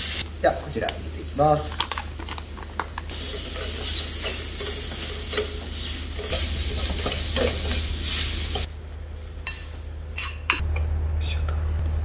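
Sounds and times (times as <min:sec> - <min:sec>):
food sizzling in a frying pan: 0:00.0 - 0:08.7
utensil scraping a pan: 0:03.1 - 0:08.7.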